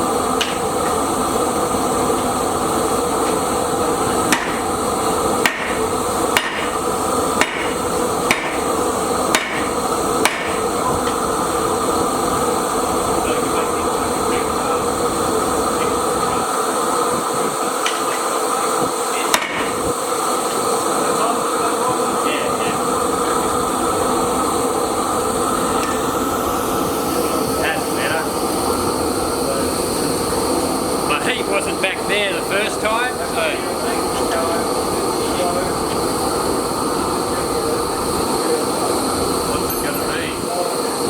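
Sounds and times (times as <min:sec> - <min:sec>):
machinery hum: 0:00.0 - 0:41.0
hammer striking hot steel: 0:00.3 - 0:11.4, 0:17.7 - 0:20.6.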